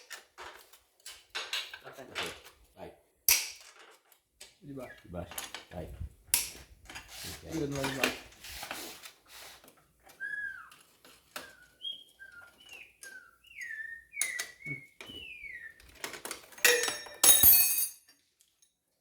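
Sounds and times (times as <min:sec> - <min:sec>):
whistled notes sliding down: 0:10.1 - 0:15.9
metal parts clattering: 0:16.0 - 0:18.2.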